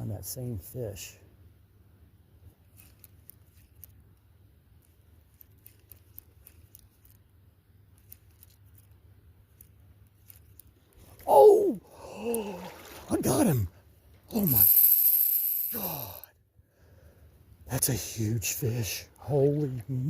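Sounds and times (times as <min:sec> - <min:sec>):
low steady rumble: 0:00.0 - 0:14.6
faint irregular clicks and ticks: 0:02.4 - 0:11.2.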